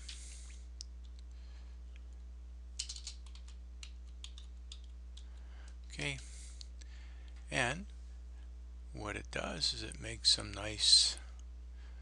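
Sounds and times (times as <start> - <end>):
steady low hum: 0.0 - 12.0
keyboard typing: 2.8 - 5.3.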